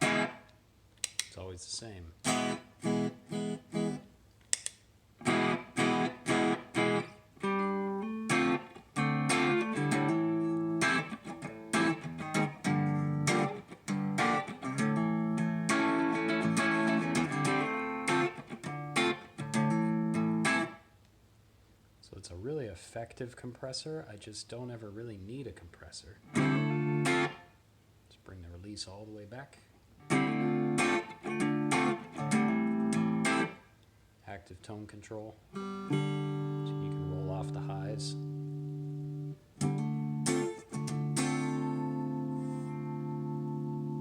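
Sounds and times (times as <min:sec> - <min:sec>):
clean electric guitar chords: 0:05.2 - 0:20.8, 0:26.3 - 0:27.4, 0:30.0 - 0:33.6, 0:35.5 - 0:44.0.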